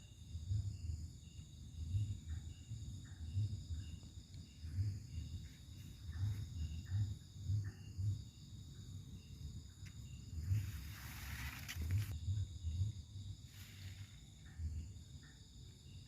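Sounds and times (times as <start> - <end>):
insects trilling: 0.0 - 16.0
low pulsing rumble: 0.4 - 9.3.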